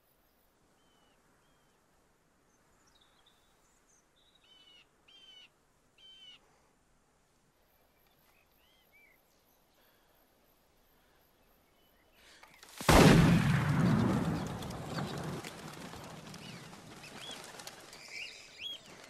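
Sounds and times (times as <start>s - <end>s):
faint outdoor ambience: 0.0s - 19.0s
bird calls: 13.8s - 19.0s.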